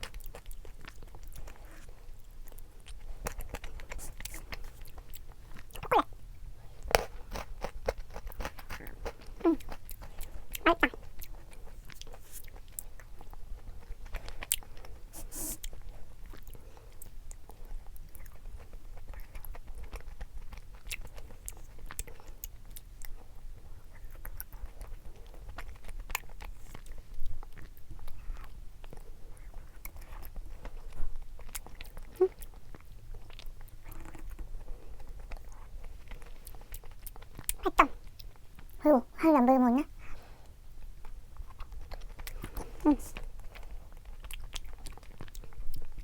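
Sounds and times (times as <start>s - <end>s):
person chewing ice cream: 0.0s - 39.2s, 39.9s - 46.0s.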